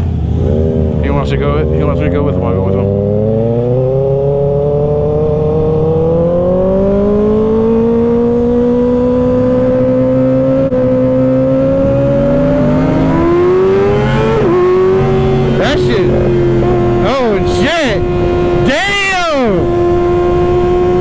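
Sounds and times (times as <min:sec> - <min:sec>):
engine accelerating: 0:00.0 - 0:21.0
second engine revving: 0:00.0 - 0:21.0.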